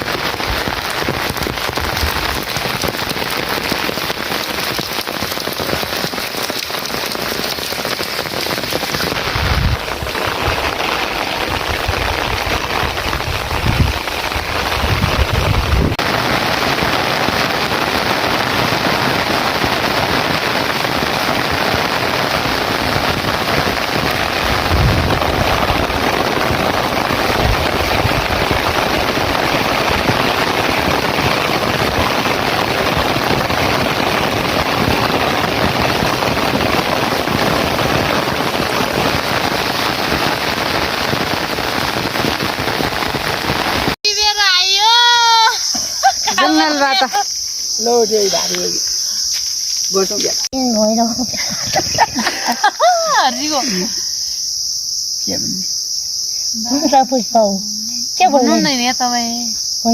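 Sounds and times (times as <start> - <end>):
heavy rain falling: 0.0 - 54.3, 56.6 - 59.4
low thumps: 24.4 - 28.4.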